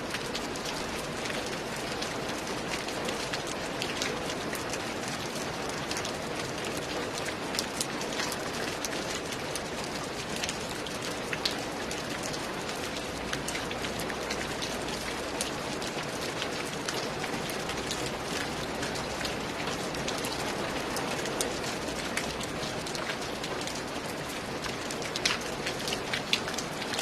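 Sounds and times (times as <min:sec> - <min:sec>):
raindrop ticks: 0:06.7 - 0:27.0.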